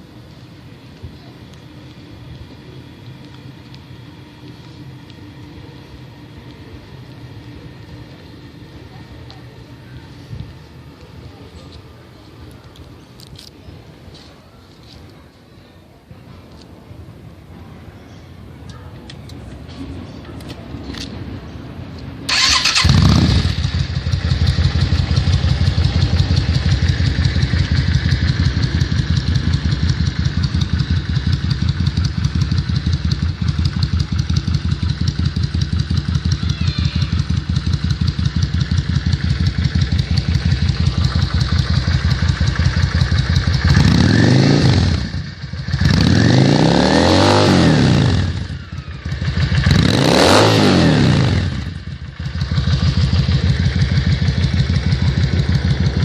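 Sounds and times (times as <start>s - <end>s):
motorcycle engine idling: 0.0s - 13.5s, 22.2s - 56.0s
motorcycle throttle revs: 22.3s - 56.0s.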